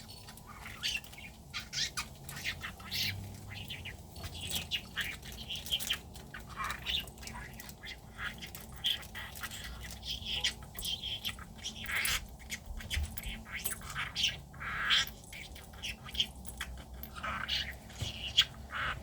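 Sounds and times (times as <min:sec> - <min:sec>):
budgerigar chattering: 0:00.0 - 0:19.0.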